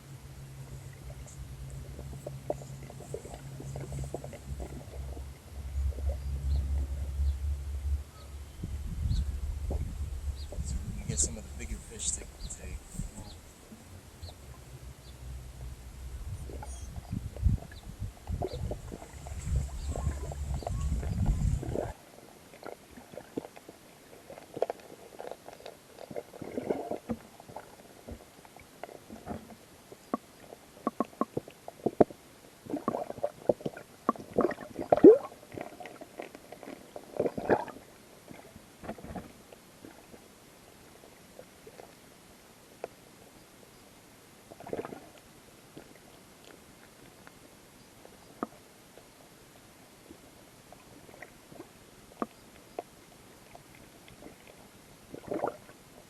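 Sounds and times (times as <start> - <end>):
low rumble: 0.0 - 21.9
muffled underwater gurgles: 0.0 - 21.9.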